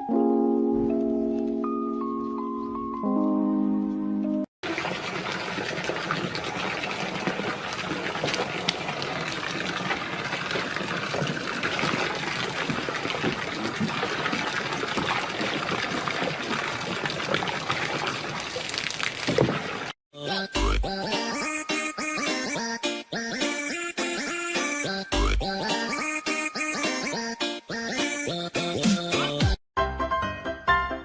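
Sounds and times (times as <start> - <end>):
water splashing and trickling: 4.6 - 20.0.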